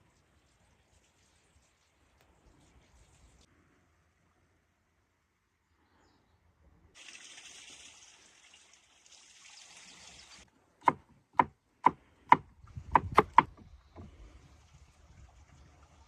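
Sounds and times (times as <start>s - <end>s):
running water hiss: 7.0s - 10.5s
chopping wood: 10.8s - 14.1s.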